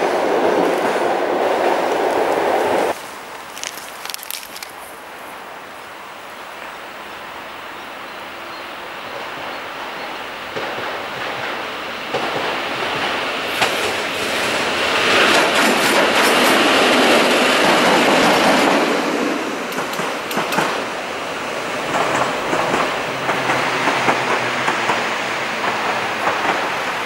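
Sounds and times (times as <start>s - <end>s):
train wheels running on rails: 9.0s - 27.0s
wheels clicking over rail joints: 15.0s - 21.0s, 21.7s - 27.0s.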